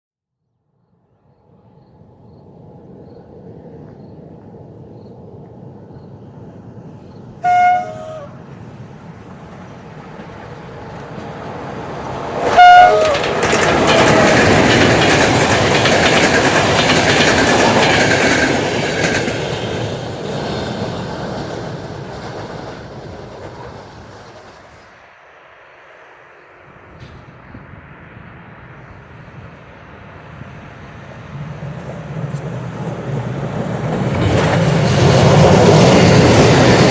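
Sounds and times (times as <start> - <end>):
train wheels rumbling on rails: 1.6 - 36.9
train horn blast: 7.4 - 8.5, 12.5 - 14.3.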